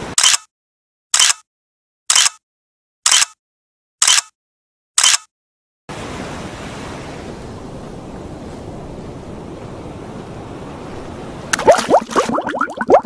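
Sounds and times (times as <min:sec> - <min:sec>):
waves breaking: 0:05.9 - 0:13.0
water splash and bubbling: 0:11.5 - 0:13.0.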